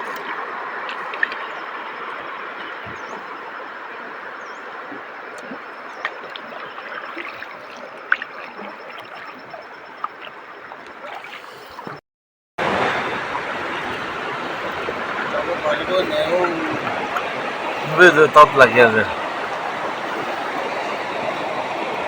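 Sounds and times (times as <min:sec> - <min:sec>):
water splashes and knocks: 0:02.6 - 0:03.4, 0:04.8 - 0:12.0, 0:12.6 - 0:22.0
river water rushing: 0:12.6 - 0:22.0.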